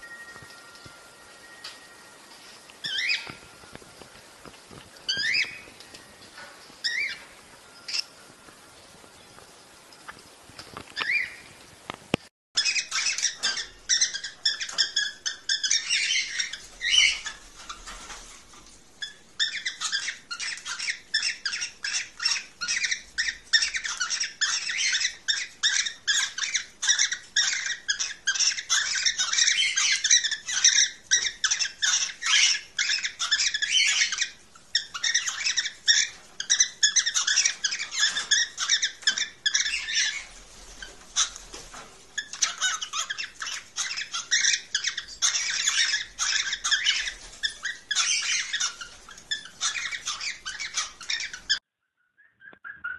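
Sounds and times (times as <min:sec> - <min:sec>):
cockatiels chirping shrilly: 0:02.8 - 0:03.4, 0:05.1 - 0:05.7, 0:06.8 - 0:07.3, 0:11.0 - 0:11.4, 0:12.6 - 0:18.4, 0:19.0 - 0:51.6, 0:52.2 - 0:52.9.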